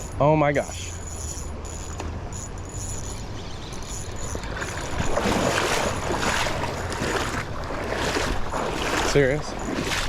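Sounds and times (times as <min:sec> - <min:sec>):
river water rushing: 0:04.1 - 0:10.0.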